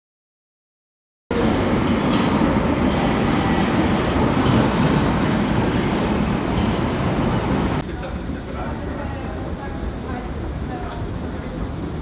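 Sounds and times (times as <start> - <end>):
train running: 1.3 - 7.8.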